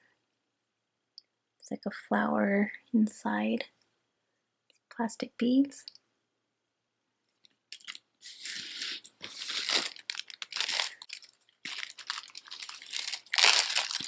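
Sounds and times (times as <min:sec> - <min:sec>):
packaging crinkling and rustling: 0:07.8 - 0:14.0.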